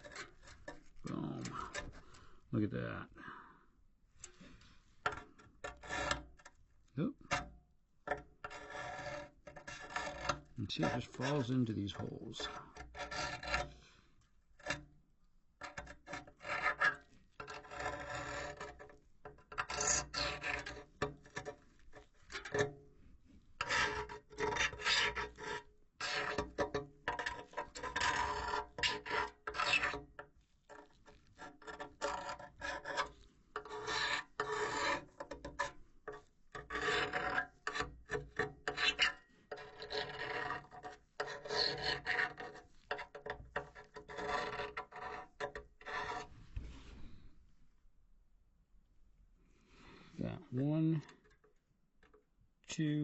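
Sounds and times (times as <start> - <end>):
metal pick scraping metal: 0.0 - 2.2, 5.0 - 6.5, 8.1 - 13.8, 15.6 - 22.7, 23.6 - 46.3.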